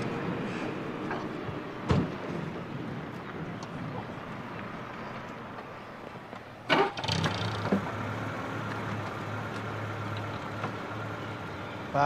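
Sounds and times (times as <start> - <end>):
sharp clunk: 1.9 - 2.2
car engine running: 6.7 - 12.0.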